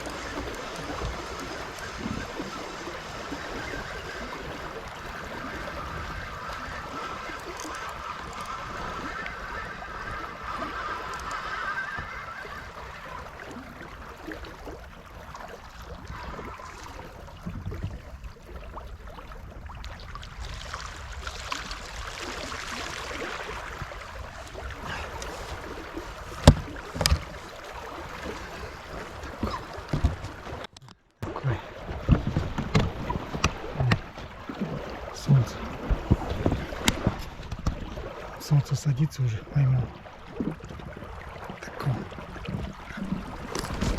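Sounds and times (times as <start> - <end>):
water lapping at riverbank: 0.0 - 43.9
fishing tackle handling: 24.8 - 27.5
sharp knocks: 26.4 - 27.3.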